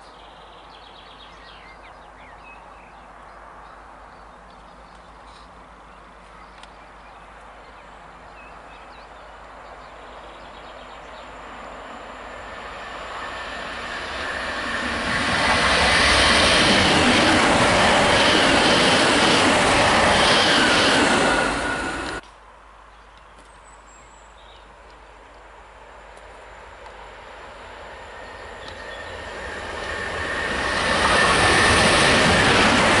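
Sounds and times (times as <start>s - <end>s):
wheel and rail noise: 9.2s - 22.4s, 24.8s - 33.0s
electric train passing: 9.4s - 22.2s, 25.4s - 33.0s.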